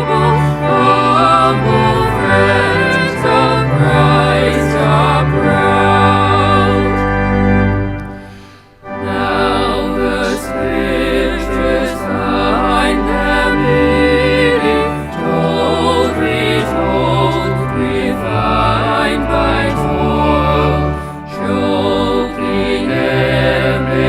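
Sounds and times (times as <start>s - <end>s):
voices singing with vibrato: 0.0s - 7.3s, 8.2s - 24.0s
long held low notes: 0.0s - 23.9s.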